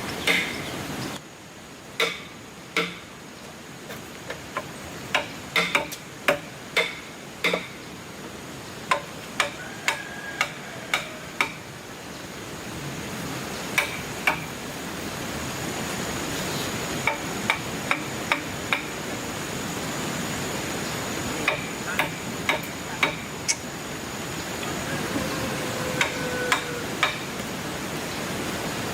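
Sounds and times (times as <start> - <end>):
hand tool knocking on wood: 4.3 - 7.8, 8.9 - 11.6.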